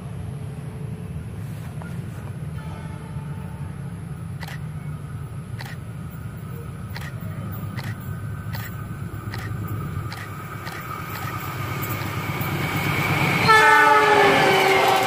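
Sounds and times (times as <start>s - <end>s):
distant diesel train rumble: 0.0s - 15.0s
faint high ringing tones: 1.8s - 13.5s
sharp clicks: 4.4s - 4.6s, 5.6s - 5.8s, 6.9s - 11.4s.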